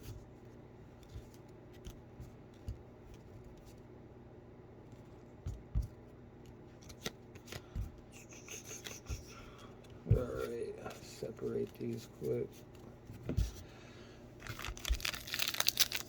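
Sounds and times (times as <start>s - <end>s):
cards sliding and tapping: 5.0s - 13.7s.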